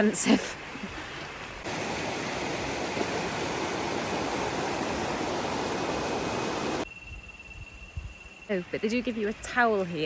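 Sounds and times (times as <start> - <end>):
river water flowing over rocks: 1.6 - 6.8.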